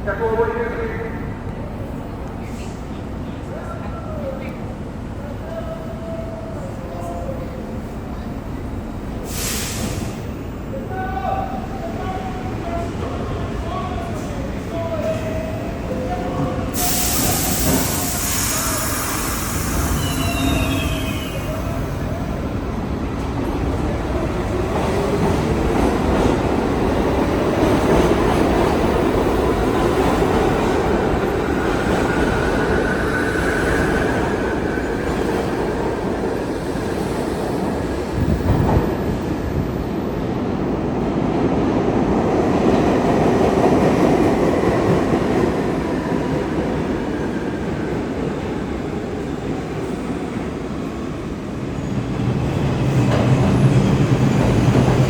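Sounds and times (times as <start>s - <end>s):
subway train rumbling on rails: 0.0s - 55.0s
faint wheel squeal: 16.8s - 21.6s.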